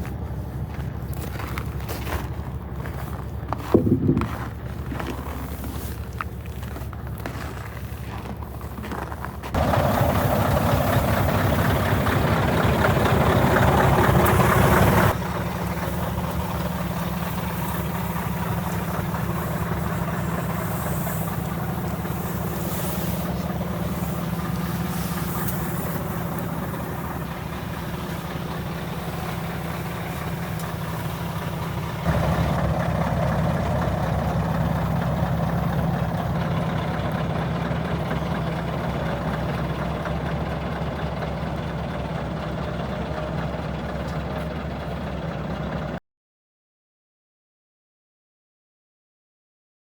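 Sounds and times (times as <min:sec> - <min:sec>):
diesel truck idling: 0:00.0 - 0:46.0.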